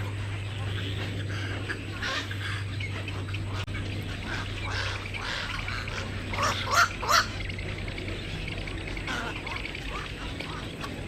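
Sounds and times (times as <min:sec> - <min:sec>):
loud harsh bird calls: 0:00.0 - 0:11.0
steady low hum: 0:00.0 - 0:11.0.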